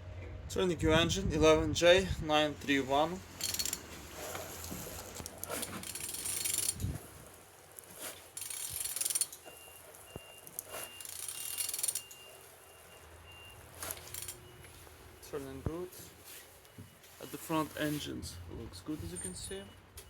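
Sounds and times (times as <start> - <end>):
ratchet wrench clicking: 3.4 - 3.9, 5.5 - 7.0, 8.4 - 9.4, 10.6 - 12.2, 13.8 - 14.4.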